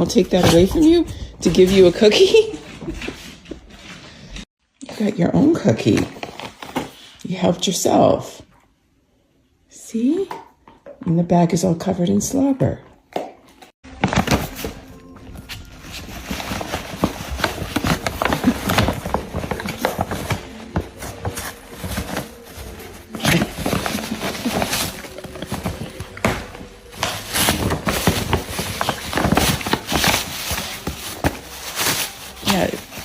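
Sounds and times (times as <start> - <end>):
paper crinkling and tearing: 13.9 - 33.0.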